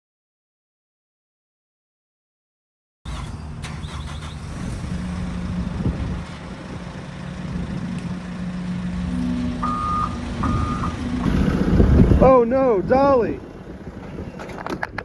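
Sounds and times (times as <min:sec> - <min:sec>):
diesel engine running: 0:03.1 - 0:15.0
reversing alarm beeping: 0:08.8 - 0:11.4.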